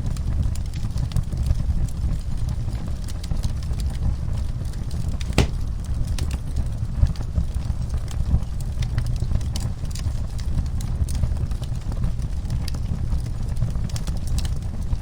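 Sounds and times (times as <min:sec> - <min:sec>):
wood fire crackling: 0:05.2 - 0:06.0
fire pops and cracks: 0:05.3 - 0:05.8.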